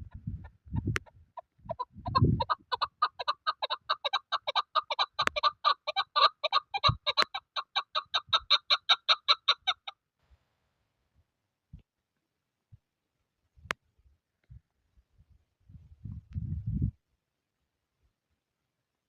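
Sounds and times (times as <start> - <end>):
partridge clucking calls: 0.0 - 9.9.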